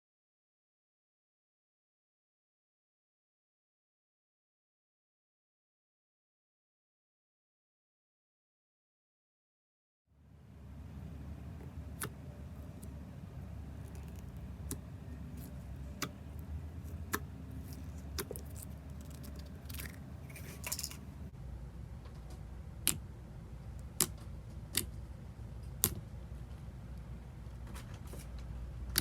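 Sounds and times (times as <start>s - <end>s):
steady low hum: 10.1s - 29.0s.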